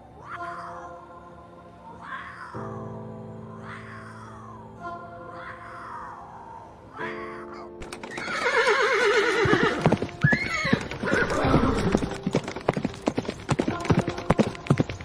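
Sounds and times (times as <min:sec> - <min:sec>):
music: 0:00.0 - 0:15.0
horse whinnying: 0:07.8 - 0:12.2
hooves clip-clopping: 0:07.8 - 0:15.0.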